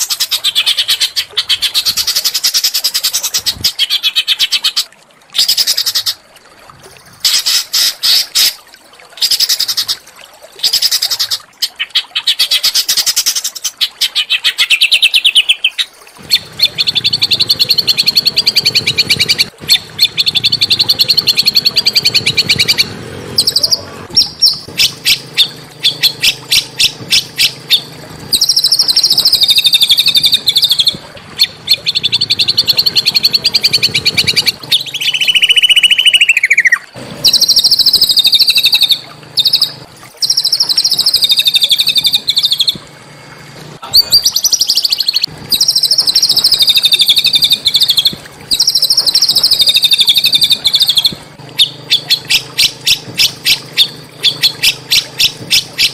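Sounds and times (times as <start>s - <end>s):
songbird chattering trills: 14.1s - 42.8s, 43.8s - 55.9s.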